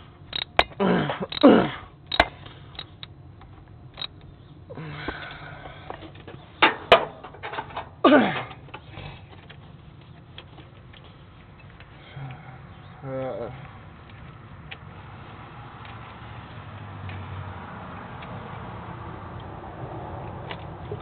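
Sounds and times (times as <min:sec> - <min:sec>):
hand tools clinking on metal: 0:05.9 - 0:08.9.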